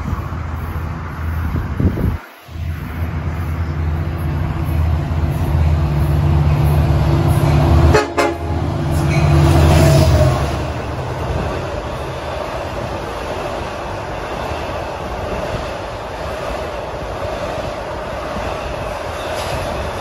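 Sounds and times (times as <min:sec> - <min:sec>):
locomotive engine drone: 0:00.0 - 0:20.0
train horn: 0:07.7 - 0:10.5.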